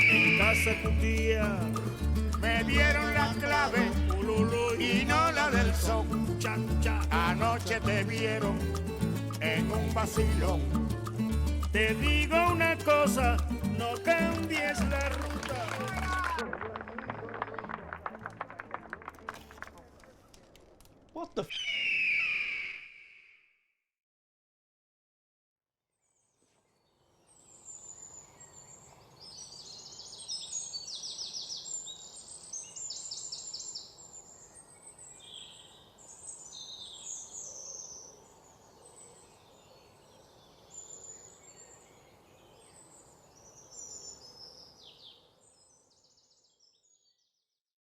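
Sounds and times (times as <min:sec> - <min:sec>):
birds chirping and trilling: 0:21.5 - 0:23.0, 0:26.1 - 0:47.4.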